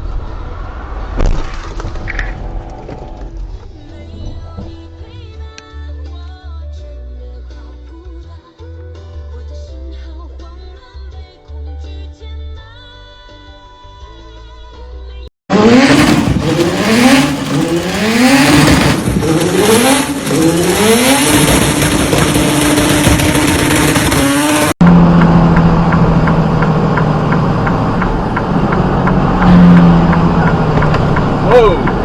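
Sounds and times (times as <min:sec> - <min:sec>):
wind and road noise: 0:00.0 - 0:04.8, 0:15.5 - 0:32.0
engine low drone: 0:00.0 - 0:05.2, 0:15.5 - 0:32.0
engine accelerating through gears: 0:15.5 - 0:32.0.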